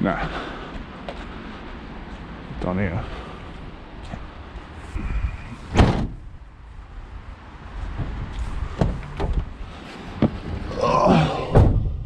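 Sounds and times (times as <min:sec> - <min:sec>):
van door slamming: 0:05.7 - 0:06.2, 0:11.5 - 0:11.9.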